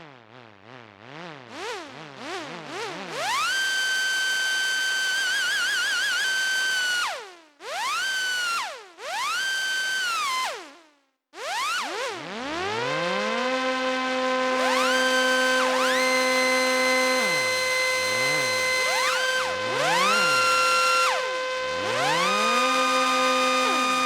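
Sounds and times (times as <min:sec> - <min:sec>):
low synthesizer chord: 0:14.2 - 0:24.0
synthesizer lead notes: 0:14.6 - 0:24.0.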